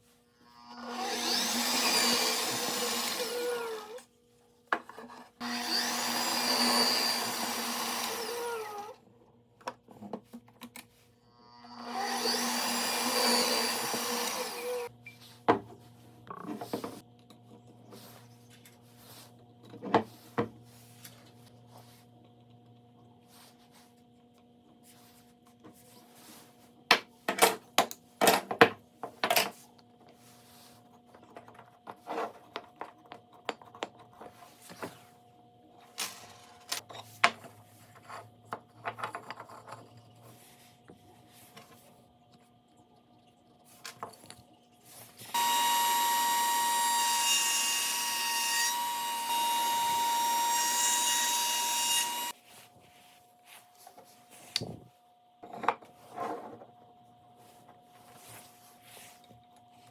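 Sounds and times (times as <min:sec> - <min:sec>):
power tool running: 0:00.7 - 0:04.0, 0:05.4 - 0:08.9, 0:11.7 - 0:14.9, 0:45.3 - 0:52.3.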